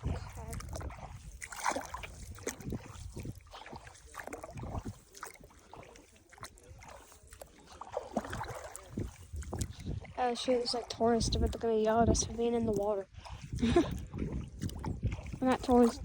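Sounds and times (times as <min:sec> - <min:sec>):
feet wading through swamp water: 0:00.0 - 0:16.0.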